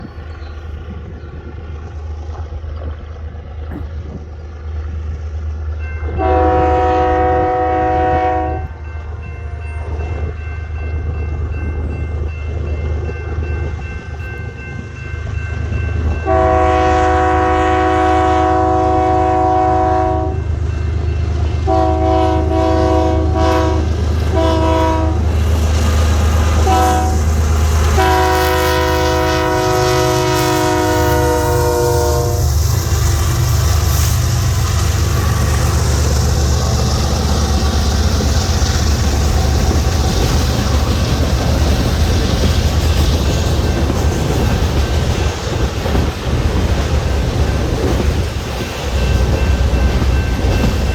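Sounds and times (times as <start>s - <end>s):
diesel locomotive rumbling: 0.0s - 50.9s
locomotive air horn blasts: 6.2s - 8.8s, 16.2s - 20.4s, 21.6s - 25.4s, 26.5s - 32.6s.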